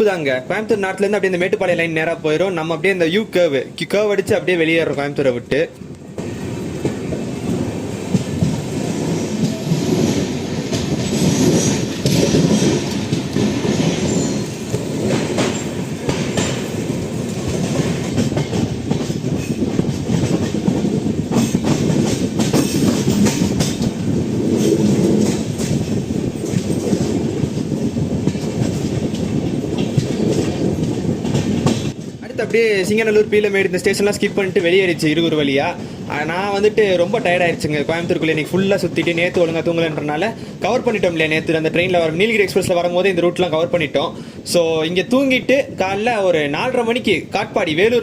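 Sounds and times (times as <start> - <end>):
train wheels rumbling on rails: 0.0 - 48.0
wheels clacking over rail joints: 5.7 - 35.9.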